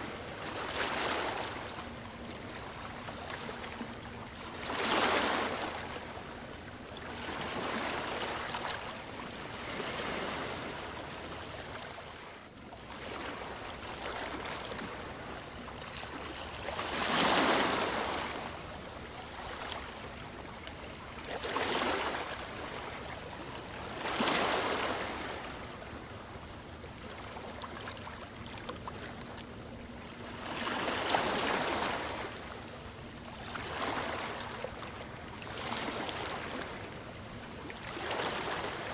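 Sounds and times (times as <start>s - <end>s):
ocean waves breaking: 7.2s - 12.2s, 16.0s - 20.2s, 21.3s - 25.8s, 33.4s - 37.0s, 37.8s - 38.9s.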